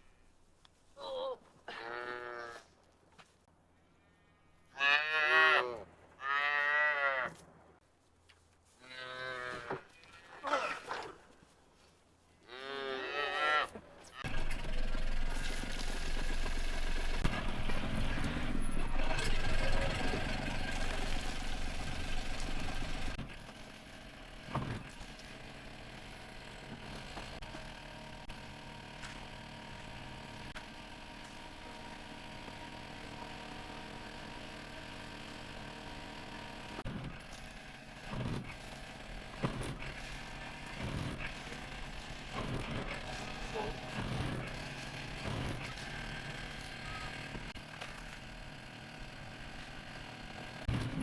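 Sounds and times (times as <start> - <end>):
calves bawling: 12.4 - 14.4, 38.0 - 47.4.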